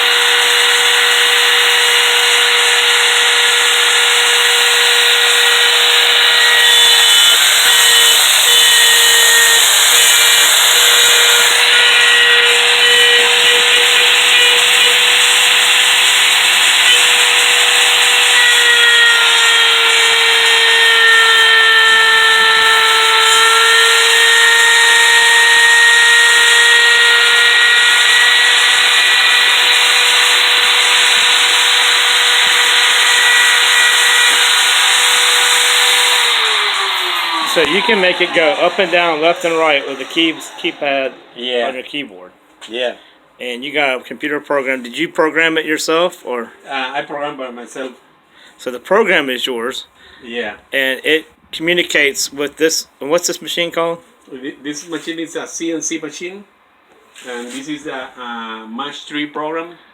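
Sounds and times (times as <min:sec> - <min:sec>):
router spindle whining: 0:00.0 - 0:42.0.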